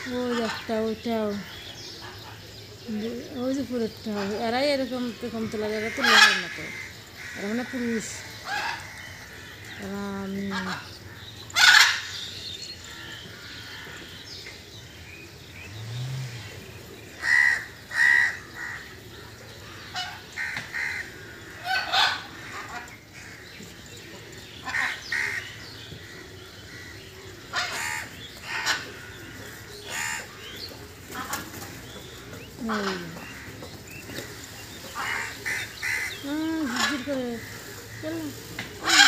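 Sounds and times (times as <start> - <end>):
harsh bird calls: 0.0 - 39.0.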